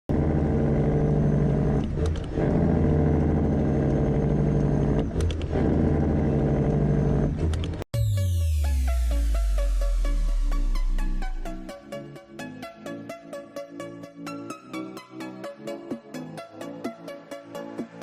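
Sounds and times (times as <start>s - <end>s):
loud diesel truck engine: 0.1s - 7.8s
electronic music: 7.3s - 18.0s.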